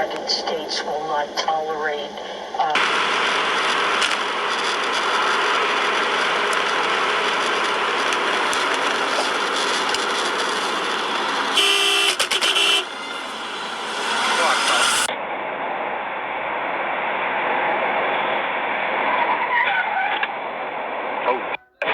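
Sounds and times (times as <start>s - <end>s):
car driving on road: 0.1s - 21.0s
car horn honking: 11.0s - 15.1s.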